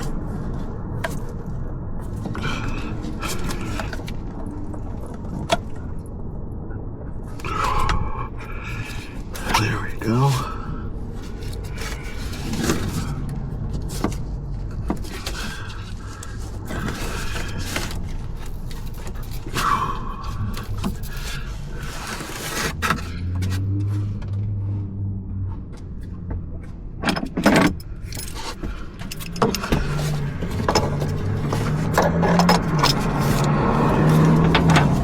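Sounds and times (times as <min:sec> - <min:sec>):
low steady rumble: 0:00.0 - 0:35.0
tools and metal parts clinking: 0:27.0 - 0:35.0.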